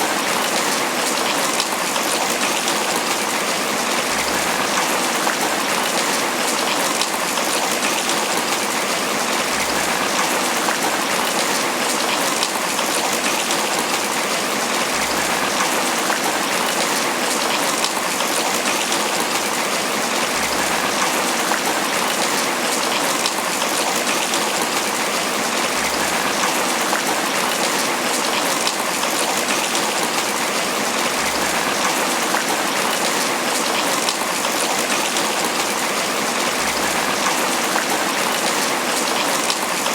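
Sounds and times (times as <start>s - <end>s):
rain on banana leaves: 0.0s - 39.9s.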